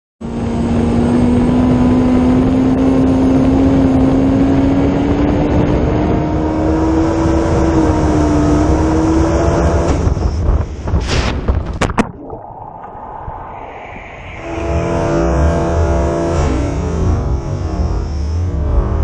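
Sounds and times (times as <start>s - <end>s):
jet ski engine at high speed: 0.2s - 10.8s
wind and water rushing: 10.0s - 16.6s.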